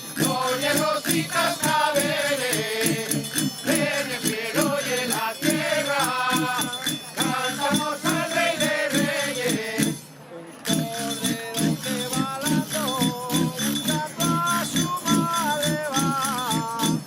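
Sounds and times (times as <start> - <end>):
group of voices singing: 0.0 - 10.1, 10.7 - 17.0
shaken and struck percussion: 0.0 - 17.0.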